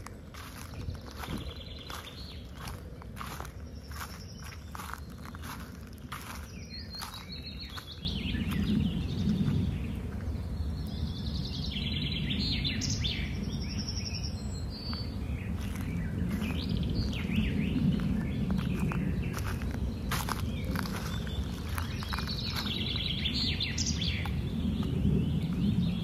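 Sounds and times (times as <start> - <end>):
birds chirping and trilling: 0.0 - 26.0
low rumble: 0.0 - 26.0.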